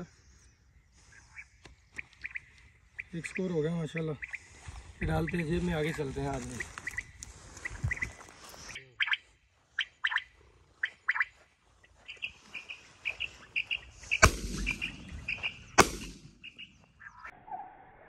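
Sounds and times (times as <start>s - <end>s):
small birds chirping: 0.0s - 17.3s
sharp bangs: 14.1s - 16.6s.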